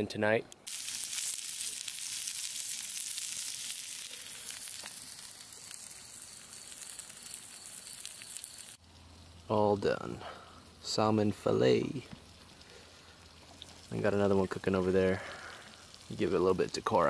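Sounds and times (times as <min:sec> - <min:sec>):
food sizzling in a skillet: 0:00.6 - 0:17.0.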